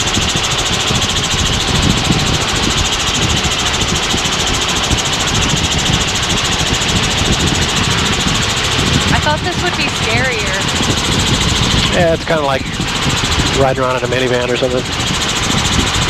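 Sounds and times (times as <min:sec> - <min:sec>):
helicopter engine and rotor: 0:00.0 - 0:16.0.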